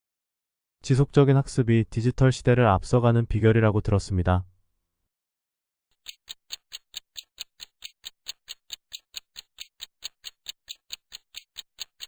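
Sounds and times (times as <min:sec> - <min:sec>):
clock-like ticking: 0:05.9 - 0:12.0.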